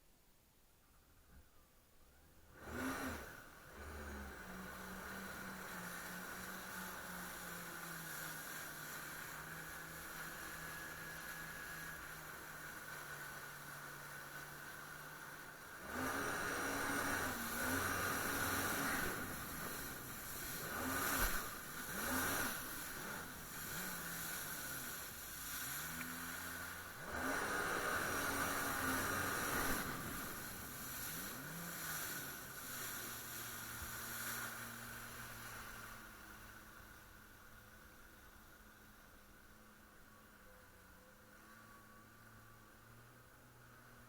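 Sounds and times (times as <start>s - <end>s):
jet ski engine running: 2.2s - 44.0s.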